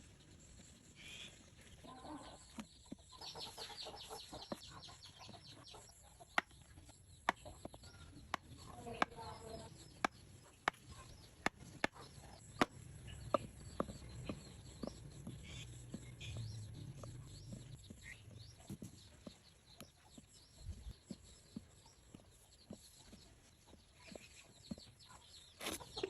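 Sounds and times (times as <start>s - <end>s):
sharp clicks and taps: 6.3s - 18.4s.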